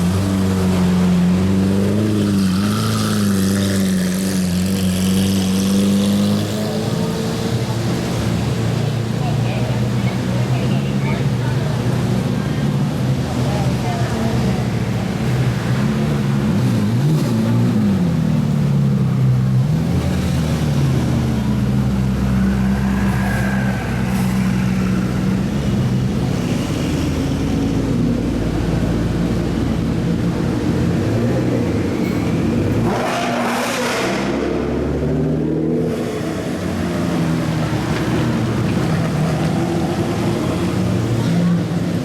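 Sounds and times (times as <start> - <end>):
sports car engines revving: 0.0 - 42.0
car passing close: 20.0 - 27.4.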